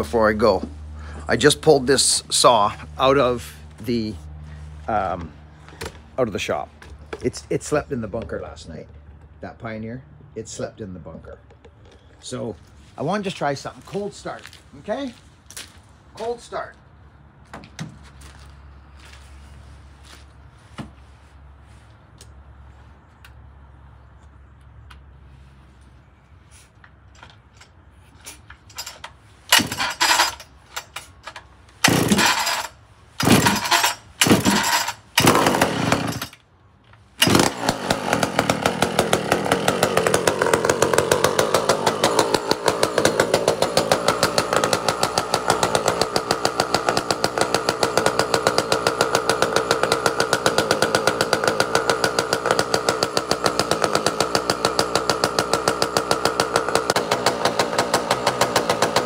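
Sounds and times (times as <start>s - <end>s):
chainsaw starting and running: 0.0s - 7.8s, 28.7s - 36.4s, 37.2s - 59.0s.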